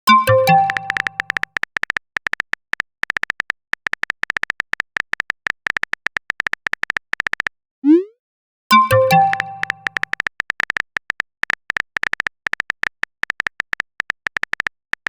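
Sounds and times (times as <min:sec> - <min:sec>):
phone keyboard typing clicks: 0:00.2 - 0:07.5, 0:08.8 - 0:15.0
electronic notification chime: 0:08.8 - 0:10.0.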